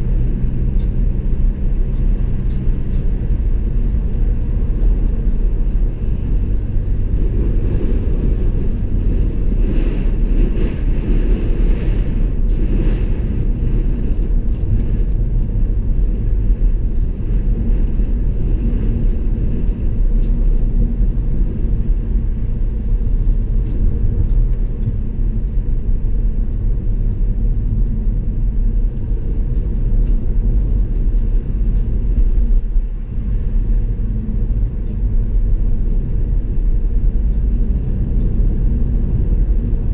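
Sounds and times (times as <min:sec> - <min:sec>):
car tyres and engine rumble: 0:00.0 - 0:39.9.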